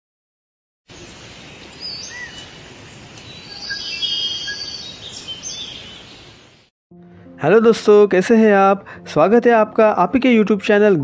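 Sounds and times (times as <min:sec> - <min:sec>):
forest ambience hiss: 0:00.9 - 0:06.7
birds chirping and whistling: 0:01.8 - 0:02.6, 0:03.2 - 0:06.7.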